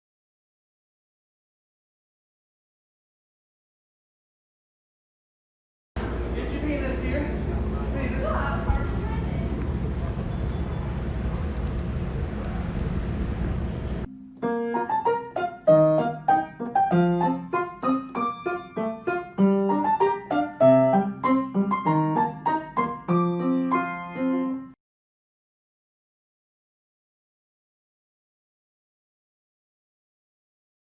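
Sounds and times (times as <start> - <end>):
steady rumbling noise: 6.0 - 14.1
solo piano melody: 14.0 - 24.8.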